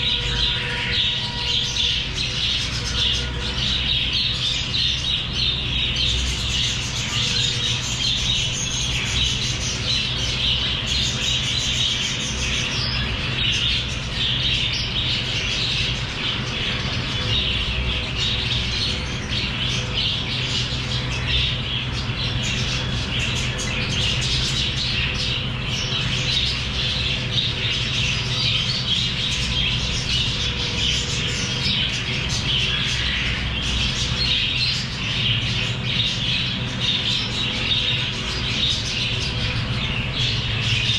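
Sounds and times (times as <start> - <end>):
parrots chattering and squawking: 0.0 - 40.9
steady low hum: 0.0 - 40.9.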